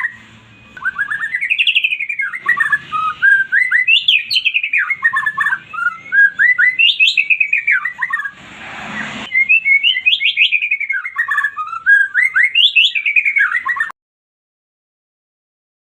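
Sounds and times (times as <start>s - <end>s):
songbird singing stuttering notes: 0.0s - 13.9s
hissing noise: 8.2s - 9.3s.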